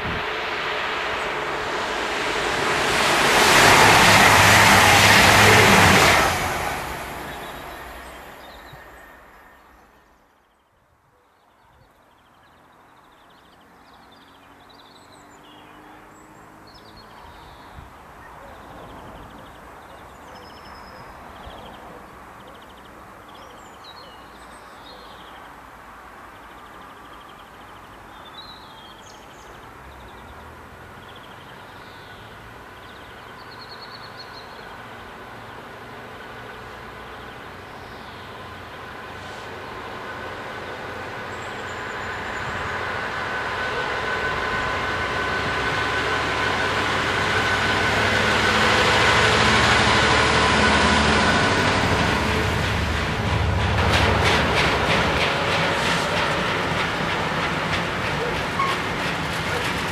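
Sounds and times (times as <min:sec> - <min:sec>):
locomotive engine rumble: 0:00.0 - 0:09.4, 0:38.4 - 0:59.9
diesel train passing: 0:00.0 - 0:10.5, 0:12.4 - 0:59.9.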